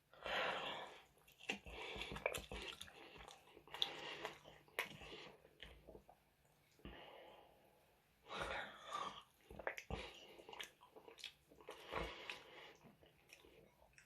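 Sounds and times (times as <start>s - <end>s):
breaths: 0.1s - 5.5s, 6.7s - 10.6s, 11.7s - 13.8s
chewing and mouth sounds: 0.9s - 6.2s, 9.2s - 14.0s.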